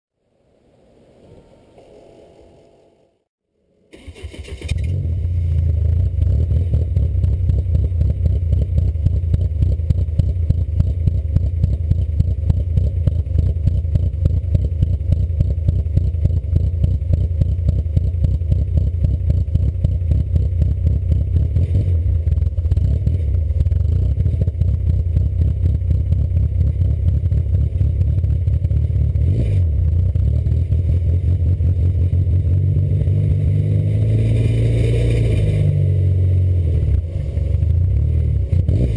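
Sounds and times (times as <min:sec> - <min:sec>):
car engine idling: 0:05.1 - 0:33.5.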